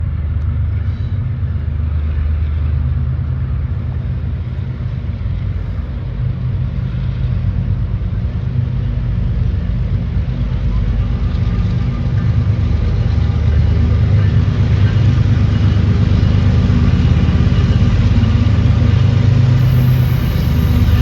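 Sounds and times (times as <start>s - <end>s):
diesel locomotives rumbling: 0.0s - 21.0s.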